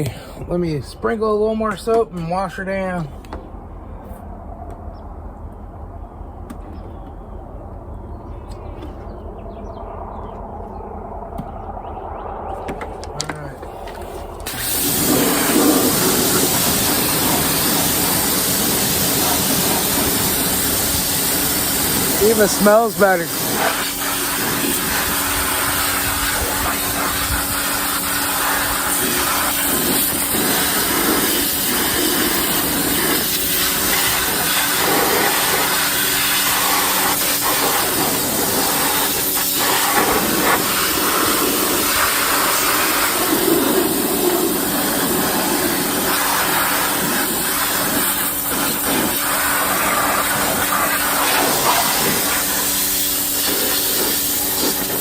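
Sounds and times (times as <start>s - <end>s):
washer motor and pump hum: 13.7s - 55.0s
pressure washer jet spraying: 14.0s - 55.0s.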